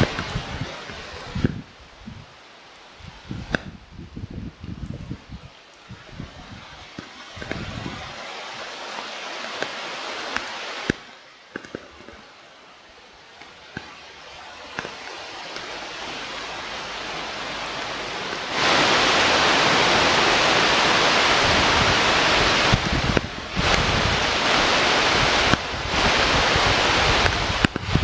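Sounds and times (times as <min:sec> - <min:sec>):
wind rushing over microphone: 0:00.0 - 0:28.0
sharp clicks and knocks: 0:09.5 - 0:12.3.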